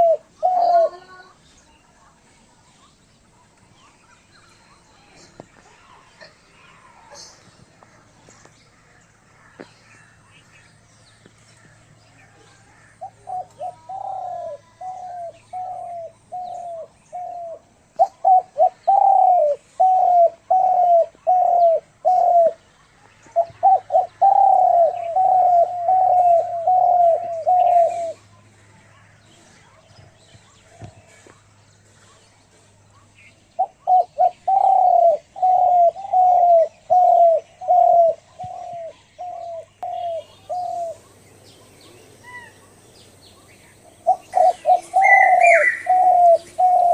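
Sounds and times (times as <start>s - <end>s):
bird calling slurred notes: 11.6s - 22.6s, 23.4s - 28.3s, 33.2s - 46.9s.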